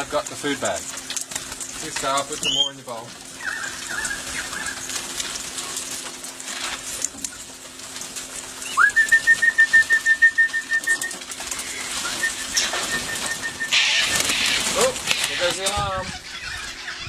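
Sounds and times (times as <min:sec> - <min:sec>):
bird alarm call: 0:02.4 - 0:02.8, 0:03.4 - 0:04.9, 0:10.5 - 0:17.0.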